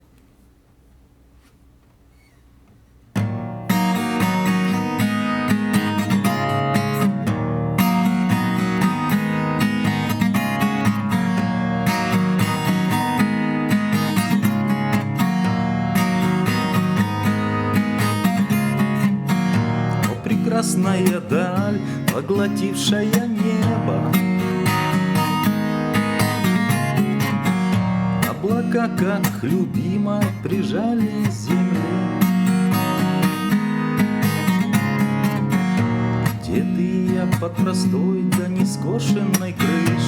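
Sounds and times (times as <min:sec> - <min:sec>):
acoustic guitar strummed: 0:03.1 - 0:40.0.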